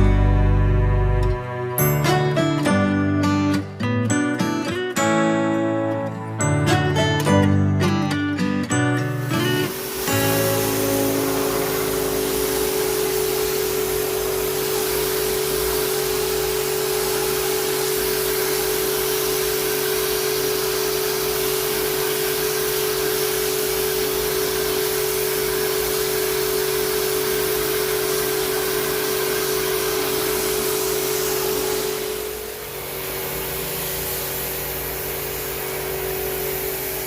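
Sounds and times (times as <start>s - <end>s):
pressure washer motor hum: 0.0s - 37.0s
water jet hissing: 9.0s - 37.0s.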